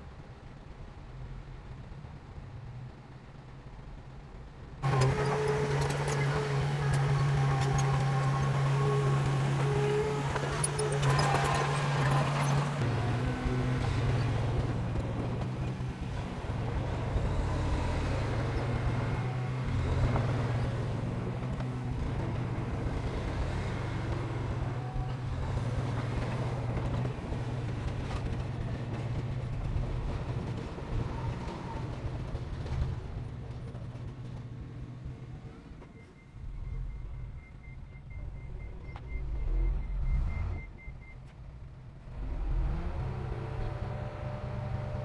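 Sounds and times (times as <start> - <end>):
heavy diesel engine droning: 4.8 - 33.6.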